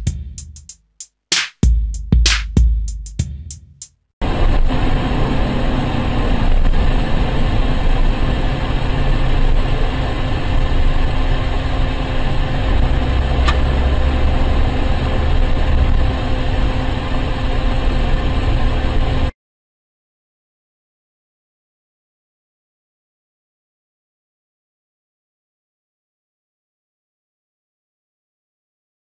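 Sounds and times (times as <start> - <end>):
vehicle engine and road rumble: 4.2 - 19.3.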